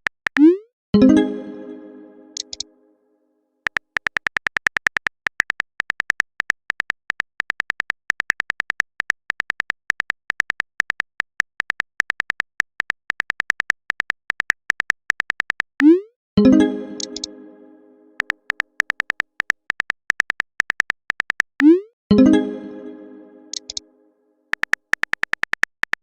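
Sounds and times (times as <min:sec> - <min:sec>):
notification sound: 0:00.4 - 0:02.8, 0:15.9 - 0:18.3, 0:21.6 - 0:24.0
keyboard typing clicks: 0:02.3 - 0:02.7, 0:03.7 - 0:17.6, 0:18.2 - 0:23.9, 0:24.5 - 0:26.0.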